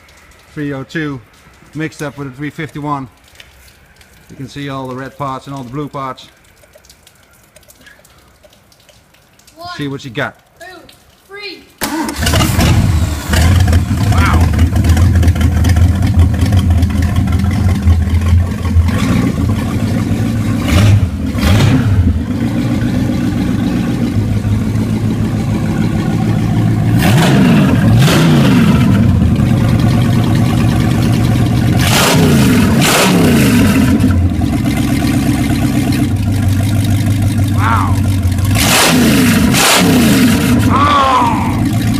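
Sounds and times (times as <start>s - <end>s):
engine idling and revving: 11.8s - 41.9s.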